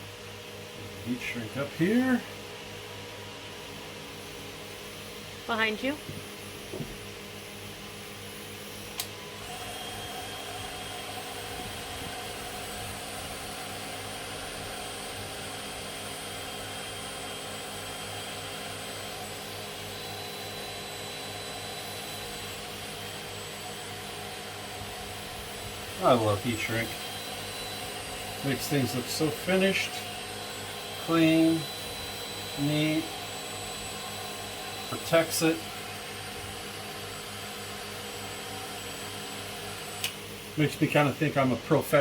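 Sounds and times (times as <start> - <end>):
heat gun running: 0.0 - 42.0
click: 40.0 - 40.2.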